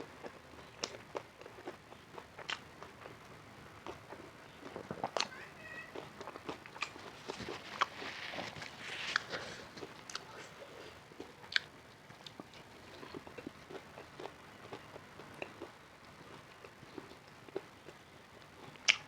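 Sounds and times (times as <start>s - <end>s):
person chewing food: 0.0s - 19.0s.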